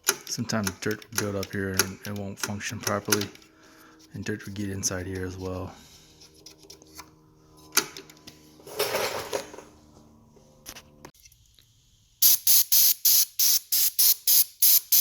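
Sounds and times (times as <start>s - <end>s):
aerosol spray hissing: 12.2s - 15.0s
short spray bursts: 12.2s - 15.0s.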